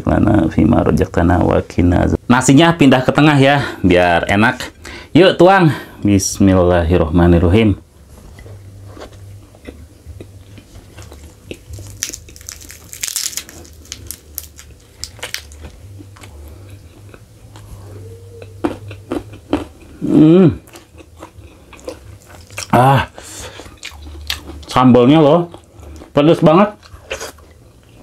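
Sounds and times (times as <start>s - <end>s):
person chewing and crunching: 8.4s - 28.0s
person humming: 17.5s - 20.7s, 22.7s - 23.4s.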